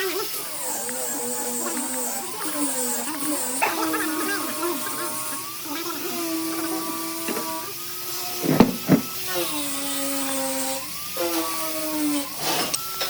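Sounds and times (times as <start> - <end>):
power tool motor whining: 0.0 - 13.0
sharp knocks: 8.4 - 9.1.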